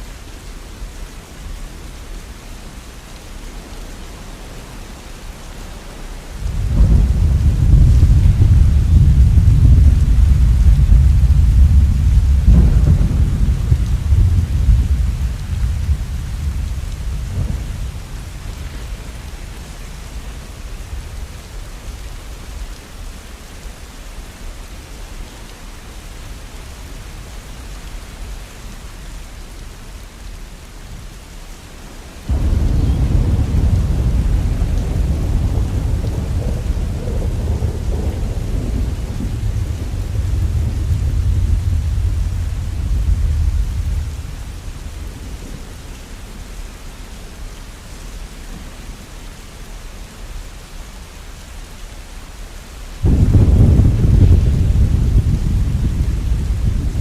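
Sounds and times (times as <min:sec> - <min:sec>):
rain hiss: 0:00.0 - 0:57.0
rolling thunder: 0:06.4 - 0:21.6, 0:32.3 - 0:46.0, 0:53.0 - 0:57.0.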